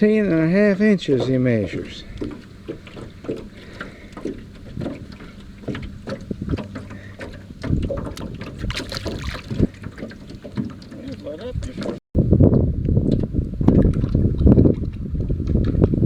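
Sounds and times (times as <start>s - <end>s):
water slapping against boat: 0.0s - 12.0s, 13.0s - 16.0s
wind buffeting microphone: 0.0s - 16.0s
knocks against boat hull: 1.0s - 12.0s.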